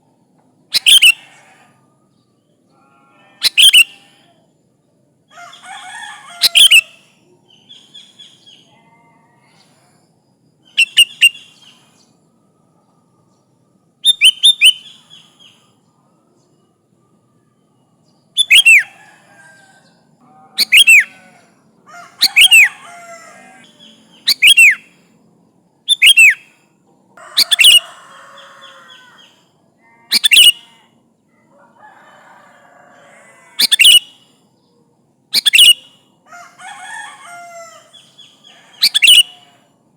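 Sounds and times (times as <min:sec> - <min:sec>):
bulbul whistled calls: 0:00.7 - 0:01.5, 0:03.4 - 0:04.1, 0:06.4 - 0:08.6, 0:10.6 - 0:12.1, 0:14.0 - 0:15.6, 0:18.4 - 0:19.0, 0:20.6 - 0:21.3, 0:22.2 - 0:25.0, 0:25.9 - 0:26.5, 0:27.4 - 0:29.3, 0:30.1 - 0:30.8, 0:33.6 - 0:34.3, 0:35.3 - 0:36.1, 0:37.9 - 0:39.6
faint bird chattering: 0:00.7 - 0:01.8, 0:02.7 - 0:04.4, 0:05.3 - 0:09.8, 0:10.6 - 0:12.0, 0:18.4 - 0:19.6, 0:20.2 - 0:25.0, 0:25.9 - 0:26.6, 0:27.2 - 0:31.0, 0:33.6 - 0:34.2, 0:35.3 - 0:36.0, 0:37.2 - 0:39.6.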